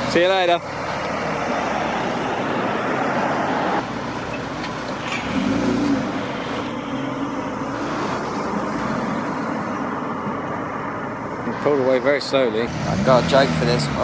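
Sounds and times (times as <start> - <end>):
car engine pulling away: 0.2 - 9.4, 12.5 - 14.0.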